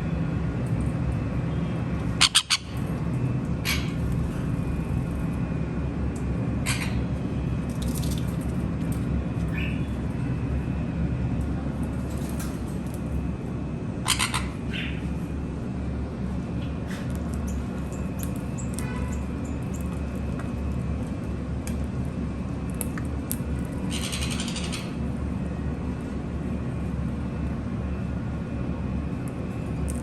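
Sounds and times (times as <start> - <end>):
steady low rumble: 0.0 - 30.0
parrots squawking: 2.2 - 2.8, 3.6 - 4.0, 6.6 - 7.1, 14.0 - 15.0, 23.9 - 25.0.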